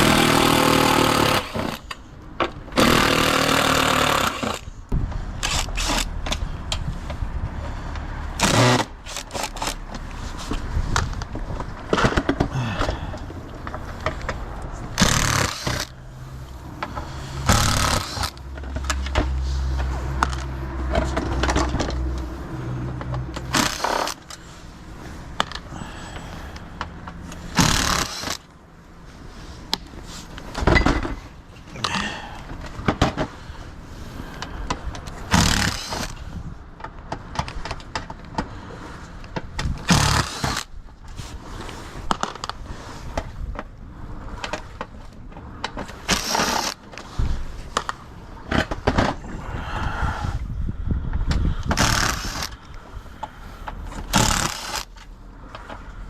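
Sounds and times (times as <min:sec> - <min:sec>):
tools and parts clattering: 0:16.8 - 0:22.2, 0:29.8 - 0:33.4.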